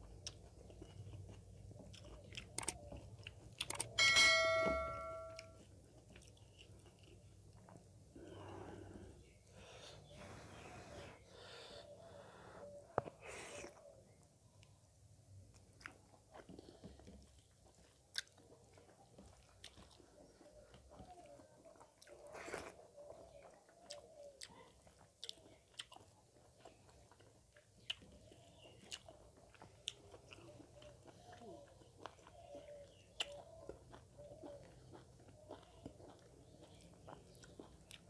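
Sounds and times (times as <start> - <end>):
person chewing with wet clicks: 0.0 - 4.0, 5.4 - 9.3, 13.6 - 38.0
lip smacks: 1.8 - 3.9.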